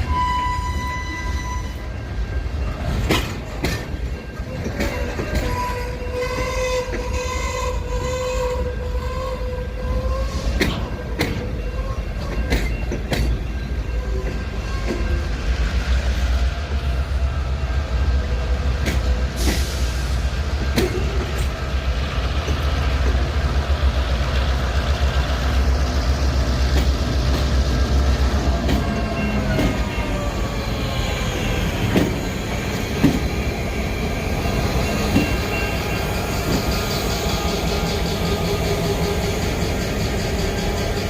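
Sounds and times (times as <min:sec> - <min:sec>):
steel wheel squeal: 0:00.0 - 0:16.3, 0:25.4 - 0:41.0
freight train rumble: 0:00.0 - 0:41.0.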